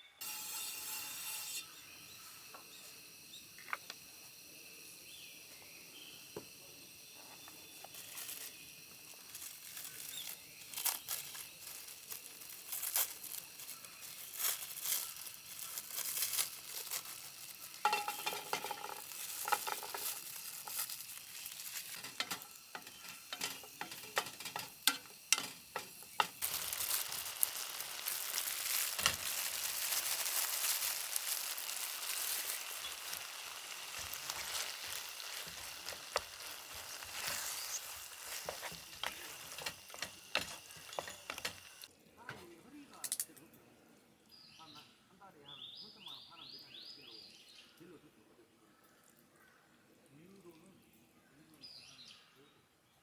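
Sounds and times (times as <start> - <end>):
food sizzling in a frying pan: 0.0 - 41.9
utensil clicking and scraping: 9.4 - 41.9.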